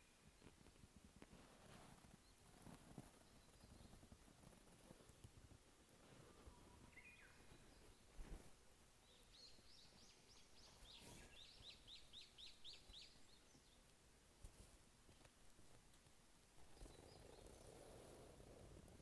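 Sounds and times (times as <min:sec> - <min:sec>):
bird chirping: 0:06.5 - 0:08.2, 0:09.0 - 0:13.8, 0:16.7 - 0:18.0.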